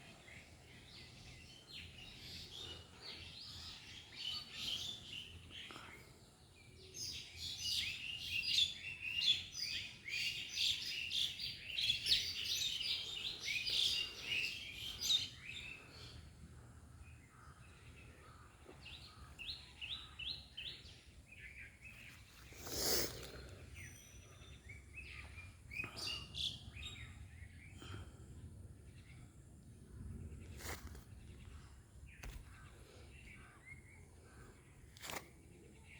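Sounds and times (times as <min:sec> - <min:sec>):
small birds chirping: 0:00.0 - 0:35.9
brief rustling: 0:35.0 - 0:35.4.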